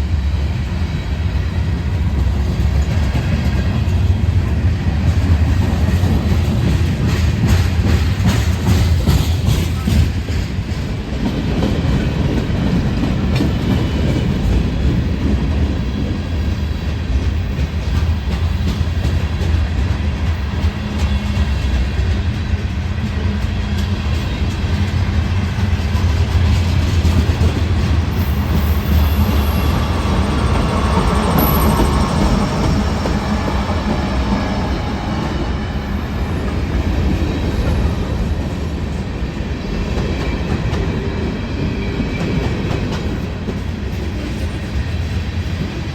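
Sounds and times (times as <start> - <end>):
train wheels rumbling on rails: 0.0 - 45.9
wheel squeal: 28.2 - 35.4.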